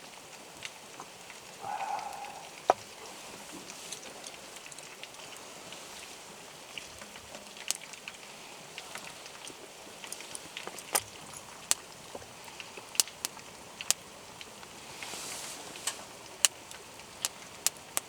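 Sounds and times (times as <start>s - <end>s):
campfire crackling: 0.0s - 18.0s
steady hiss: 1.3s - 6.7s, 7.6s - 18.0s
fire popping: 7.0s - 18.0s.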